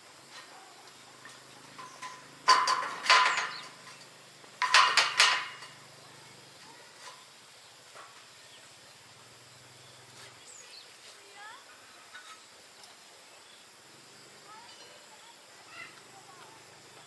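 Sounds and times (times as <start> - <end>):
iron bars clanking: 1.2 - 5.9.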